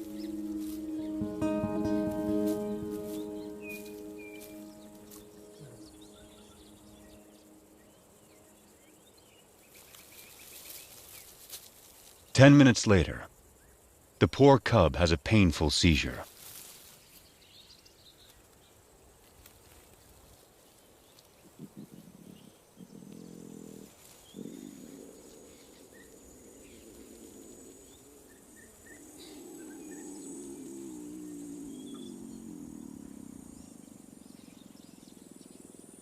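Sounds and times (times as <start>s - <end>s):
faint bird chirps: 0.0s - 11.4s, 20.6s - 36.0s
insects chirring: 0.0s - 36.0s
lion low wavering calls: 21.5s - 25.9s, 26.5s - 34.7s.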